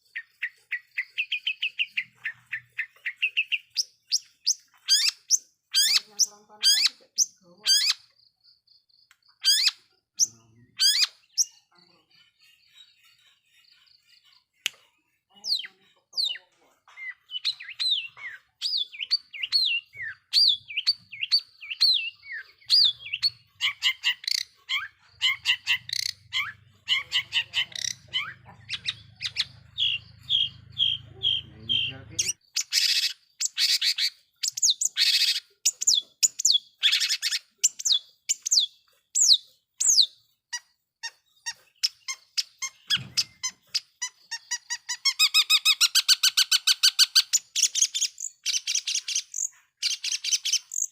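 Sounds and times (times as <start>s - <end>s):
bird chirping and whistling: 0.4s - 6.1s, 17.1s - 40.1s, 41.8s - 50.9s.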